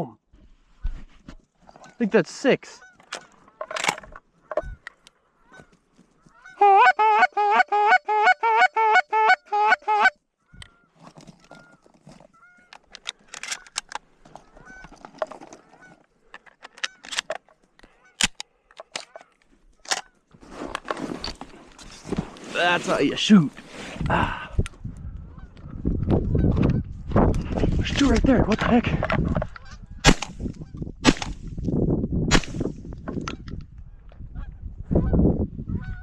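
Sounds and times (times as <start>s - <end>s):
goose honks: 6.3s - 10.2s.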